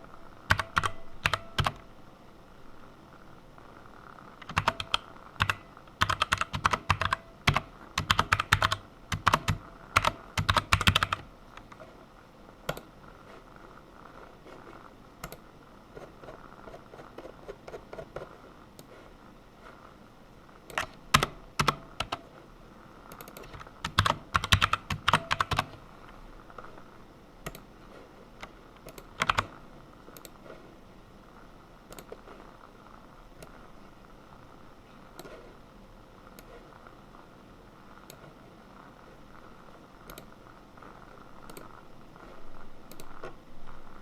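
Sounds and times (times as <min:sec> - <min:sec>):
typing on computer keyboard: 0:00.5 - 0:01.9, 0:04.4 - 0:11.8, 0:20.7 - 0:22.3, 0:23.1 - 0:25.8, 0:28.4 - 0:29.6.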